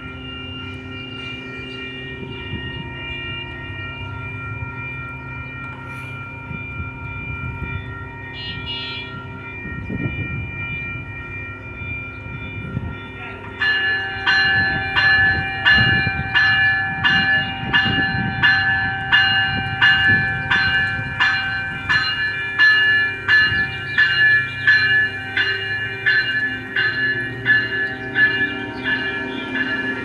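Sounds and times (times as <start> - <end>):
railway warning bell ringing: 0.0 - 30.0
train rumbling: 0.0 - 30.0.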